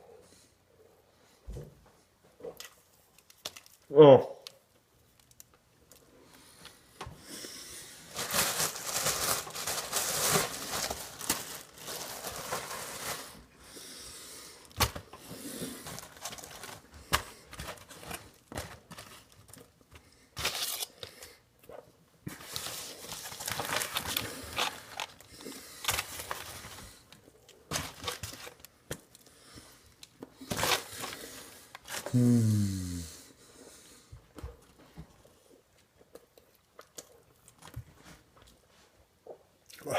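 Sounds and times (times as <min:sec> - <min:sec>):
crinkling and tearing: 0:02.5 - 0:06.0, 0:08.1 - 0:13.4, 0:15.8 - 0:29.3
man chewing and smacking: 0:34.3 - 0:38.6.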